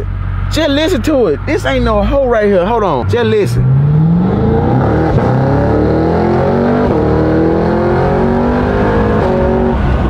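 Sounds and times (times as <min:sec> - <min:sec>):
car engine accelerating hard: 0:02.2 - 0:10.0.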